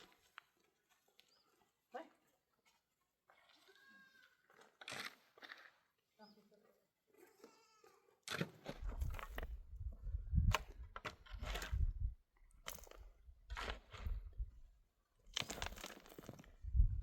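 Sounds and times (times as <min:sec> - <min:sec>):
crunching in stony soil: 0:08.2 - 0:17.0.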